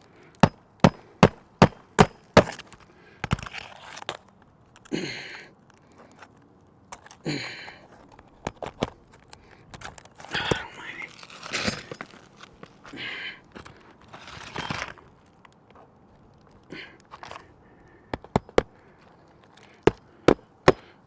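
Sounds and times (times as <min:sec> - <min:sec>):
hammer striking roofing nail: 0:00.4 - 0:02.6, 0:19.8 - 0:21.0
short scraping sounds: 0:10.6 - 0:12.5, 0:14.1 - 0:15.0.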